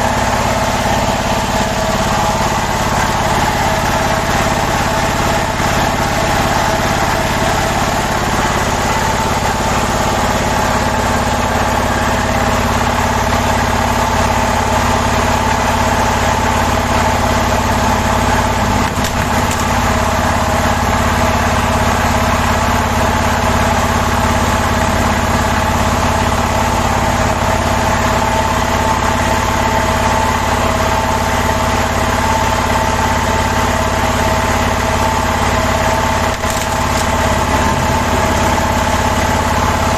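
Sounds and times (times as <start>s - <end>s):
hydraulic pump motor whining: 0.1s - 23.0s, 33.6s - 39.9s.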